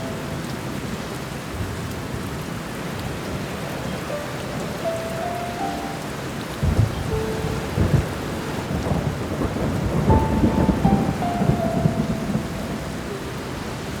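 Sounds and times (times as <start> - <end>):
slow piano melody: 0.0 - 1.1, 3.5 - 14.0
steady rain: 0.0 - 14.0
low rumbling thunder: 6.4 - 14.0.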